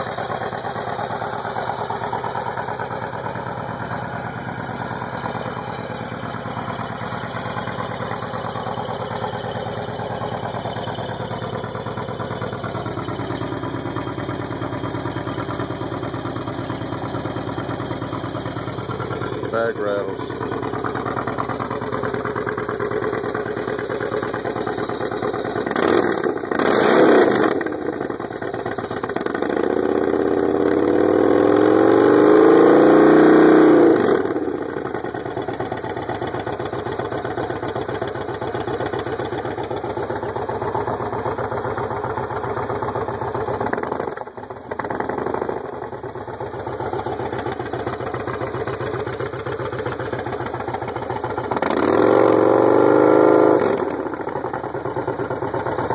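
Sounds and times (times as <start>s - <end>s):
engine idling and revving: 0.0s - 55.9s.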